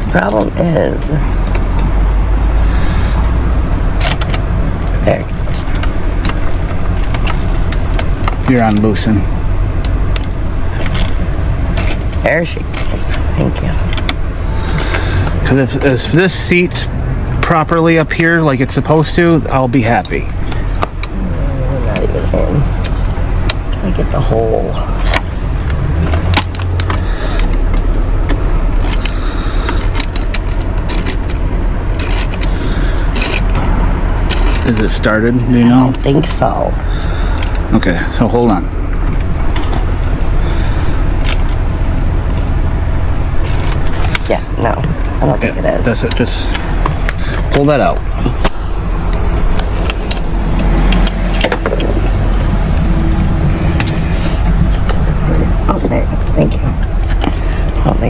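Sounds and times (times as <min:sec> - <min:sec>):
steady low rumble: 0:00.0 - 0:58.0
metal tools clicking and scraping: 0:29.8 - 0:34.8.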